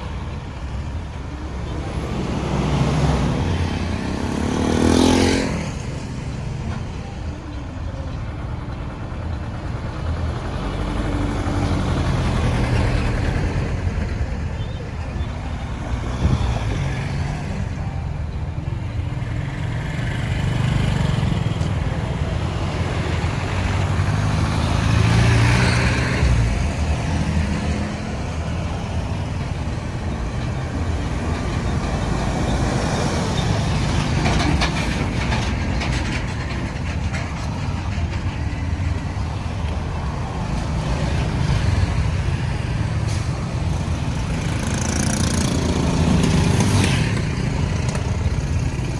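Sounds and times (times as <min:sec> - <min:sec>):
vehicle passing: 0:00.0 - 0:06.2, 0:19.5 - 0:48.9
road traffic rumble: 0:00.0 - 0:48.9.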